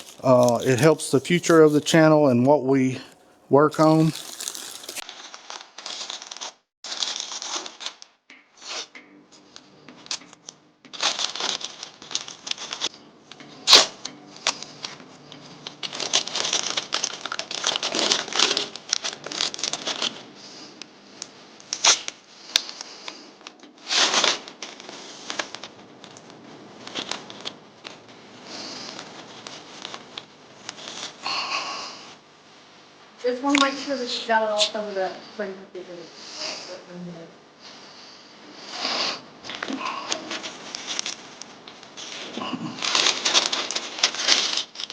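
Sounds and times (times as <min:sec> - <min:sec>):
masking tape pulled and torn: 0:00.0 - 0:08.0
paper crinkling: 0:00.0 - 0:08.0, 0:10.9 - 0:12.9, 0:15.7 - 0:20.1, 0:42.0 - 0:44.9.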